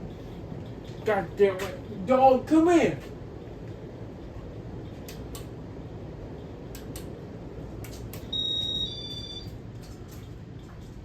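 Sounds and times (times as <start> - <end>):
ceiling fan whooshing hum: 0.0 - 11.0
two-part electronic beep: 8.3 - 9.5.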